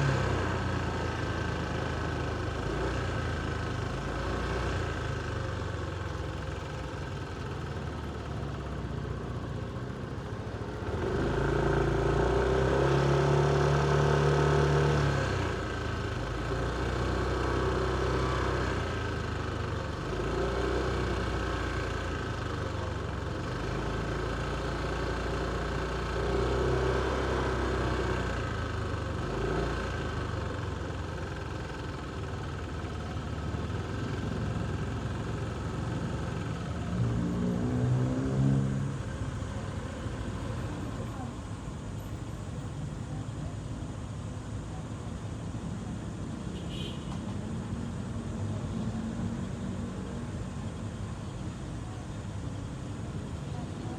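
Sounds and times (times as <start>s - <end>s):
motorcycle engine revving: 9.3s - 19.0s, 23.2s - 41.0s.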